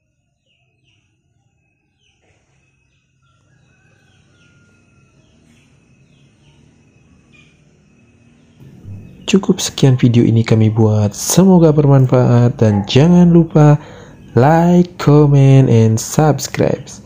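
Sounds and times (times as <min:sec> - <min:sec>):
faint bird calls: 0:00.0 - 0:11.4, 0:12.6 - 0:14.6.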